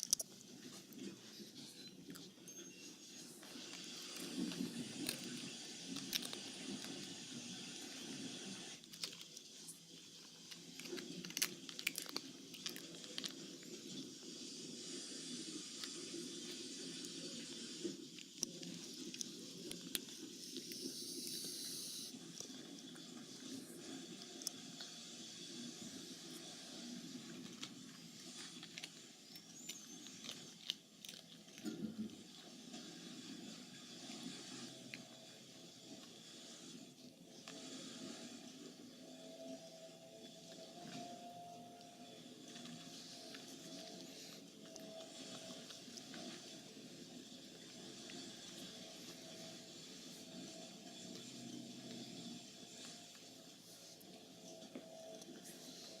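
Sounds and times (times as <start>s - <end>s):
crisp packet crinkling: 3.4s - 7.2s, 8.8s - 14.1s, 27.3s - 31.8s
crackles and crunches of chip bag: 3.4s - 21.4s, 25.9s - 35.1s.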